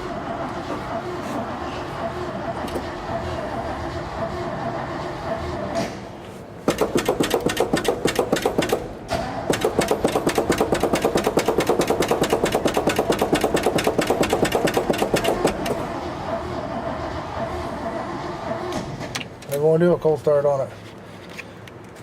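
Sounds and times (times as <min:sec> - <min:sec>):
starter motor cranking engine: 0:06.6 - 0:18.9.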